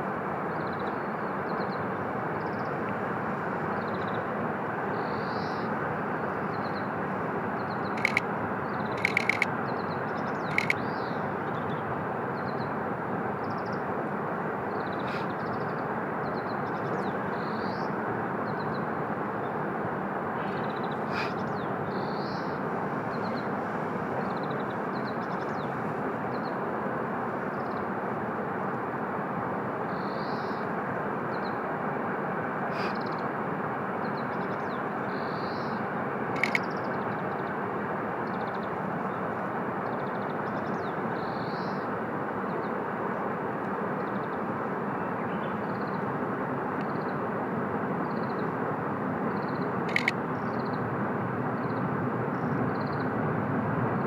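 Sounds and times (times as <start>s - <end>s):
small birds chirping: 7.7s - 9.5s, 10.2s - 11.2s, 36.4s - 36.7s, 49.9s - 50.1s
sharp clicks: 8.0s - 8.3s, 8.9s - 9.5s, 10.5s - 10.8s, 36.4s - 36.6s, 49.9s - 50.1s.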